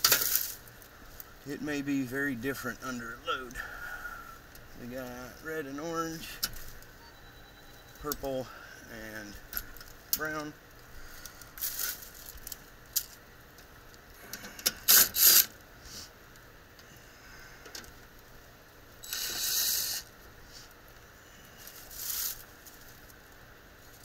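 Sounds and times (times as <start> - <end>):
small metal parts clinking: 0.0 - 0.7, 11.3 - 13.2
scraping rustle: 21.5 - 24.0.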